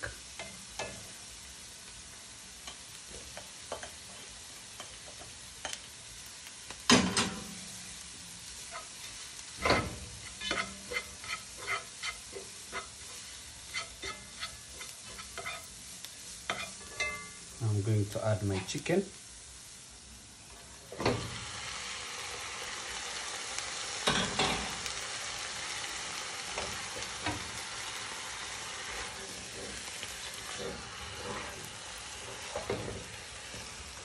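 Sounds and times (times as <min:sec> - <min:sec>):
onion sizzling in oil: 0:00.0 - 0:34.0
spatula stirring and scraping pot: 0:08.6 - 0:17.4, 0:26.4 - 0:34.0.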